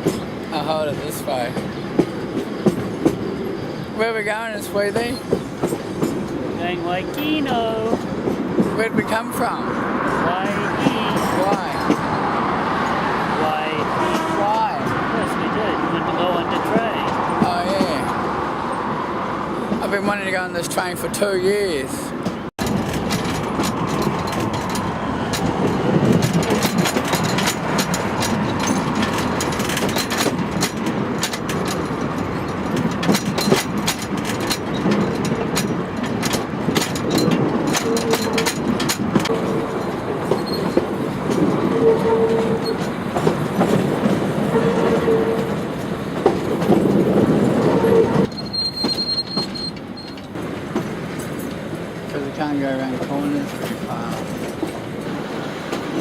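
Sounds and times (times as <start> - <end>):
wheels clicking over rail joints: 0.0 - 18.9, 19.6 - 56.0
train carriage rumbling and rattling: 0.0 - 56.0
wheel squeals: 36.7 - 45.6, 46.2 - 50.4.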